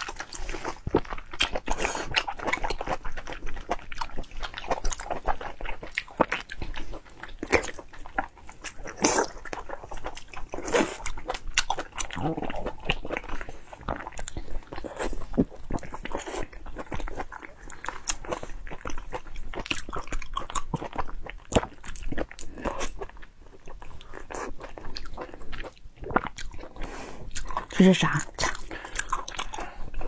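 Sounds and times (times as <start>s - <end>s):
person biting and chewing: 28.3s - 30.0s.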